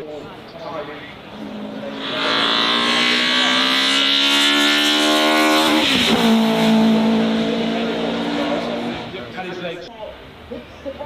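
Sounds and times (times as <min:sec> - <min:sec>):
racing car engine accelerating: 0:01.3 - 0:09.6.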